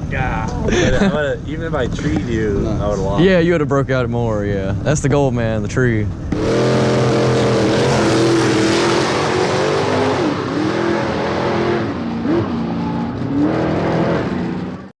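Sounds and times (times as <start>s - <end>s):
road noise: 0.0s - 14.9s
car engine running: 3.9s - 14.9s.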